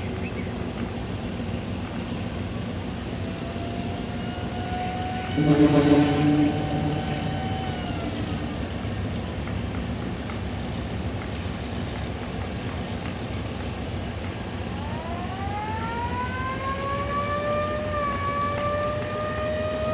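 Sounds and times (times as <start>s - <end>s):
noisy background: 0.0s - 19.9s
siren wailing: 3.6s - 9.1s, 14.8s - 19.9s.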